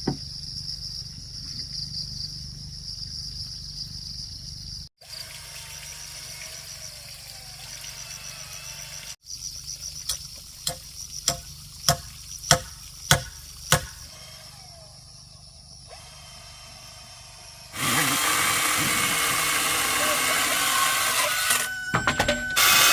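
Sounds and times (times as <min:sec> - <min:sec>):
insect chorus: 0:00.0 - 0:17.8
sharp knocks on wood: 0:10.7 - 0:14.0.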